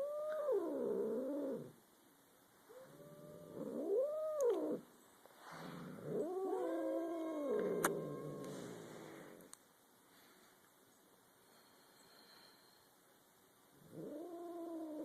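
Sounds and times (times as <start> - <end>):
cats growling and yowling: 0.0 - 1.8, 2.7 - 4.9, 5.7 - 9.4, 13.8 - 15.0.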